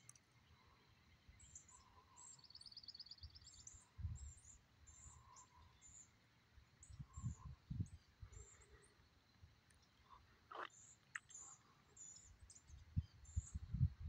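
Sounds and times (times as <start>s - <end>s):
birds chirping: 0.0s - 14.0s
low rumble on microphone: 3.8s - 4.6s, 6.8s - 8.6s, 12.5s - 14.0s.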